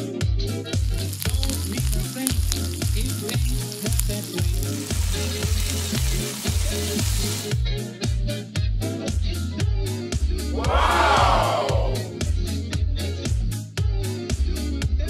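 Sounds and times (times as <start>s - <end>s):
background music with bass beat: 0.0s - 15.0s
food sizzling in oil: 0.6s - 7.6s.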